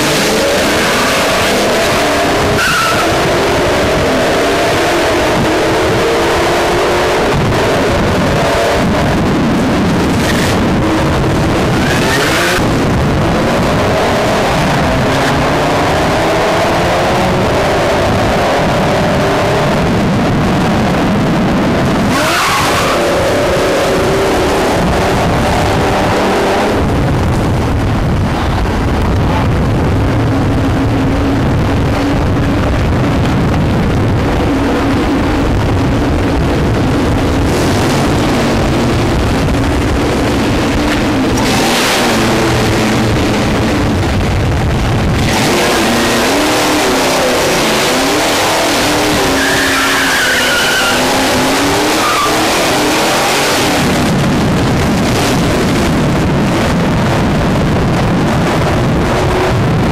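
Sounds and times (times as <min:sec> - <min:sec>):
drag racing car engines accelerating: 0:00.0 - 0:59.9
tyre squeal: 0:02.5 - 0:03.2, 0:49.2 - 0:52.7.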